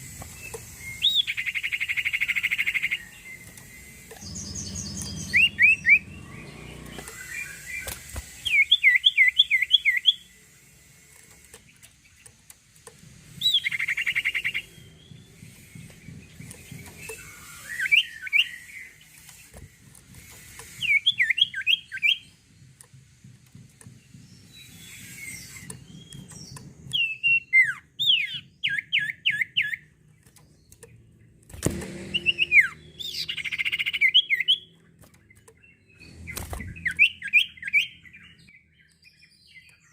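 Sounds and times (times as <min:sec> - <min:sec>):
songbird whistling: 0:00.3 - 0:10.4, 0:13.3 - 0:19.1, 0:20.3 - 0:22.5, 0:24.1 - 0:29.9, 0:31.8 - 0:34.8, 0:35.7 - 0:39.9.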